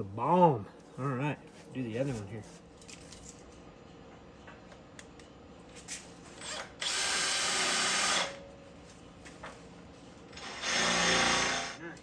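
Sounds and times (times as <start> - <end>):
electric drill drilling into steel: 6.4 - 8.4, 10.4 - 11.8.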